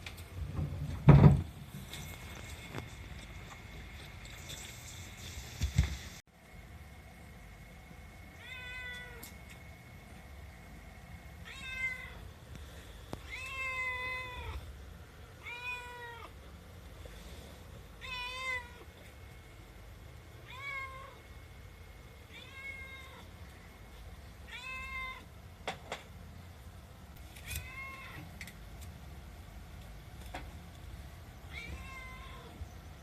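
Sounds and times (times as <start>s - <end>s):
cat meowing: 8.4s - 9.2s, 11.4s - 12.2s, 13.2s - 14.6s, 15.4s - 16.4s, 18.0s - 18.9s, 20.4s - 21.2s, 22.3s - 23.3s, 24.5s - 25.3s, 27.4s - 28.3s, 31.5s - 32.6s.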